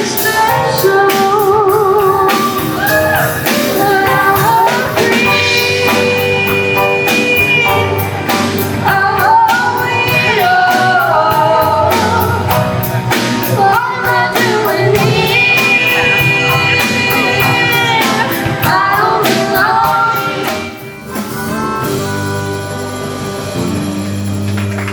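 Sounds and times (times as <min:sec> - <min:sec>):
rock band with drum beat: 0:00.0 - 0:24.9.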